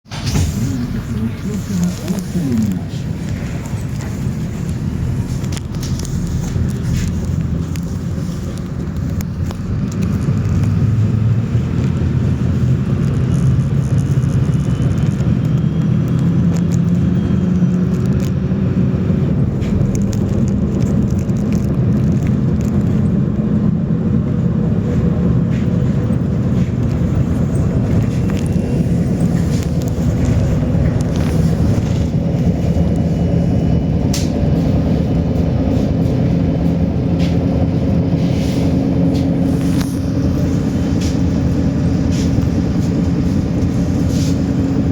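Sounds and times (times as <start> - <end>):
bus diesel engine droning: 0.0 - 44.9
road noise: 0.0 - 44.9.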